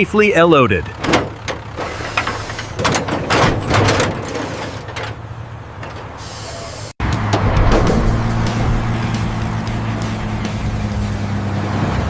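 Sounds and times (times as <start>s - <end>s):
truck engine running: 0.0s - 12.0s
machinery clacks and rattles: 1.0s - 5.2s, 7.0s - 12.0s
hiss of air: 6.2s - 7.0s.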